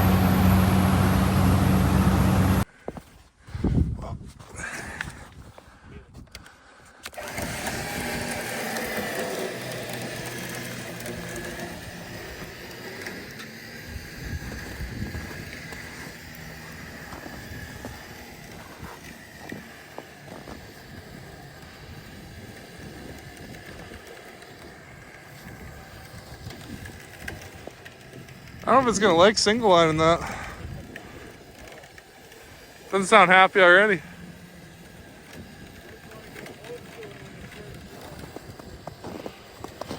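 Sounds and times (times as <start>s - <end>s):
high steady whine: 0.0s - 2.6s
truck engine running: 0.0s - 2.6s, 7.2s - 31.6s.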